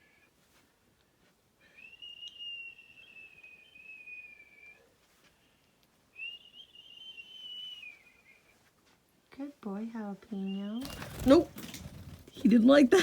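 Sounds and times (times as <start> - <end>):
long whistled notes: 1.7 - 4.9, 6.2 - 8.5.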